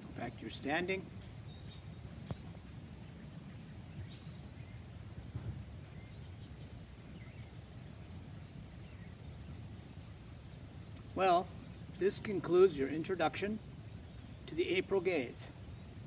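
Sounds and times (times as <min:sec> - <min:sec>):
faint bird chirps: 0:00.2 - 0:11.9.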